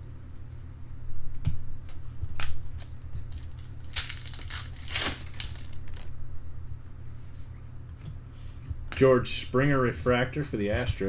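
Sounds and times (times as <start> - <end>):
steady low hum: 0.0 - 11.0
card wrapper crinkling: 2.4 - 6.1.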